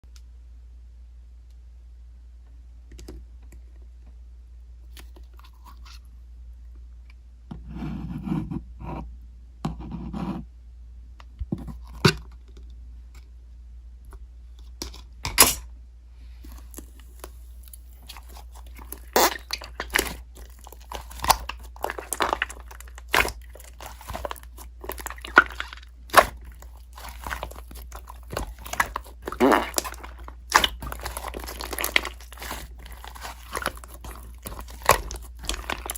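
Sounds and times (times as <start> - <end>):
crunching and chewing: 16.4 - 35.9.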